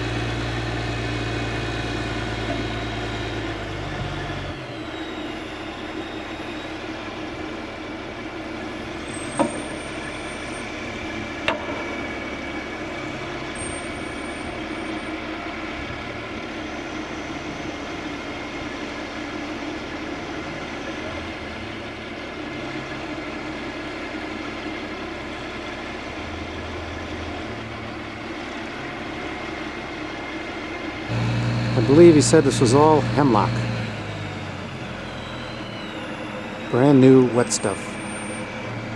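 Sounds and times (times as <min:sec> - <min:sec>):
heavy crane engine running: 0:00.0 - 0:38.9
sharp knocks: 0:11.5 - 0:11.9.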